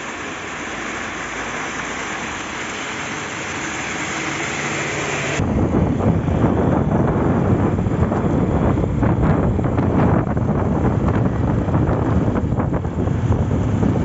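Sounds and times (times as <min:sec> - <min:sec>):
wind buffeting microphone: 0:04.8 - 0:14.0.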